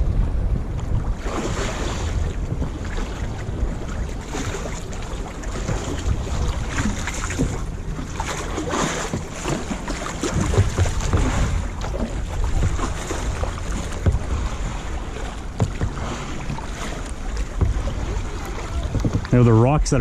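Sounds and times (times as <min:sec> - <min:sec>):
water splashing around kayak: 0:00.0 - 0:20.0
wind buffeting microphone: 0:00.0 - 0:20.0.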